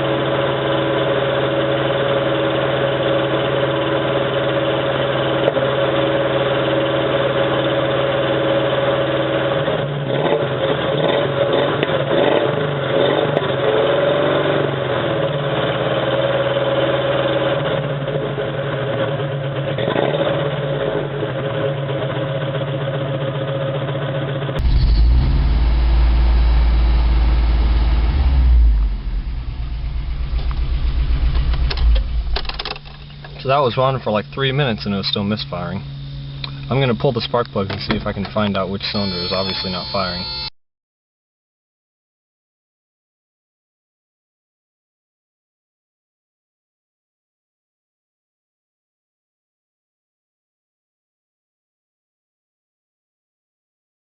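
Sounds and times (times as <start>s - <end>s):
engine running rough and misfiring: 0.0s - 39.6s.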